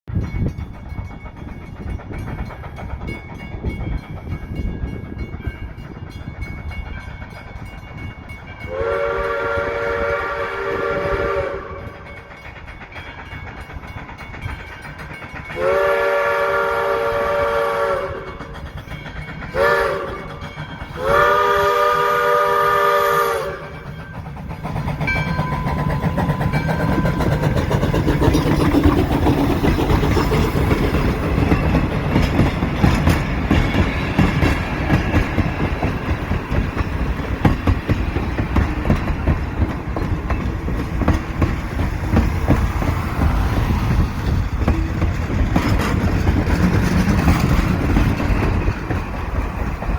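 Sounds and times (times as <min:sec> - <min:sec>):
train rumbling past: 0:00.1 - 0:49.9
locomotive horn blasts: 0:08.7 - 0:12.0, 0:15.6 - 0:18.3, 0:19.6 - 0:20.2, 0:21.0 - 0:23.7
wheels clacking over rail joints: 0:11.3 - 0:49.9.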